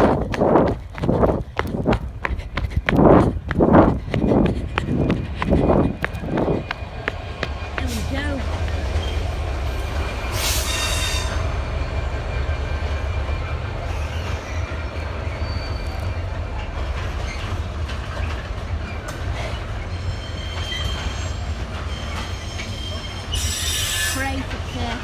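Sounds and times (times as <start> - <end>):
freight train rumbling on rails: 0.0 - 25.0
high wheel squeal: 10.3 - 13.0, 19.9 - 24.4.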